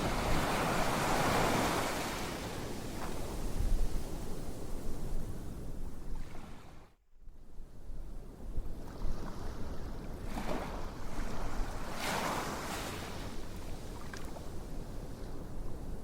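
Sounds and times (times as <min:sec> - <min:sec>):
ocean waves washing in: 0:00.0 - 0:05.5, 0:08.8 - 0:13.9.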